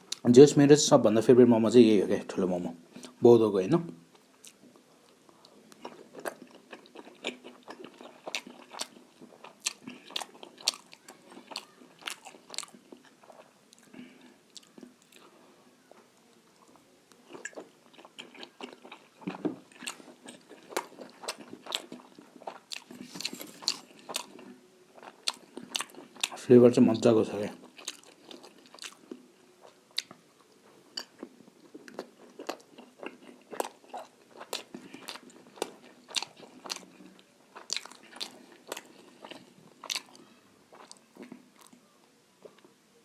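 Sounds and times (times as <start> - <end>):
close-up chewing with mouth smacks: 4.1 - 15.3, 15.9 - 26.4, 27.6 - 41.8.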